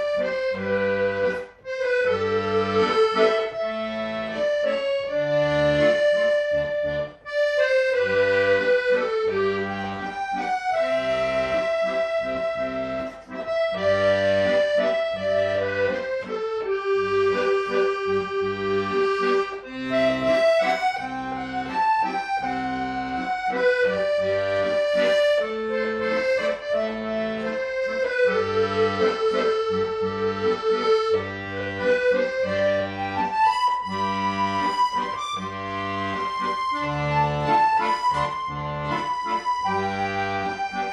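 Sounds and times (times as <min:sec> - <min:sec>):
accordion playing a melody: 0:00.0 - 0:40.9.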